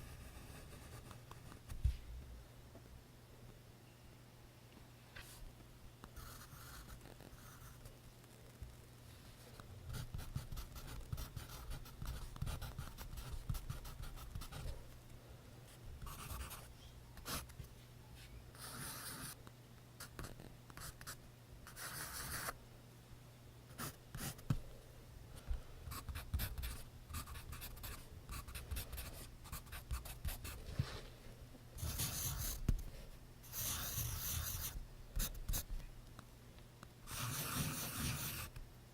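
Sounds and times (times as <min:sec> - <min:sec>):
faint low hum: 0:00.0 - 0:38.9
pencil writing on paper: 0:16.1 - 0:17.5, 0:18.6 - 0:19.4, 0:21.7 - 0:22.5, 0:31.8 - 0:32.6, 0:33.5 - 0:35.6, 0:37.1 - 0:38.5.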